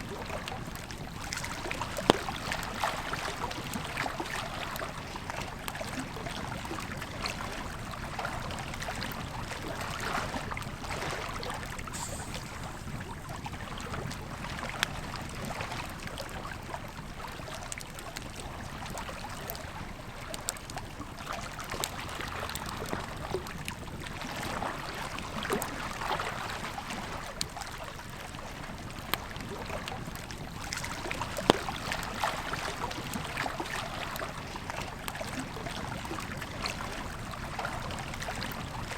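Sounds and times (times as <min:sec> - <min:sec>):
river flowing: 0:10.8 - 0:14.8
campfire crackling and popping: 0:11.8 - 0:15.0.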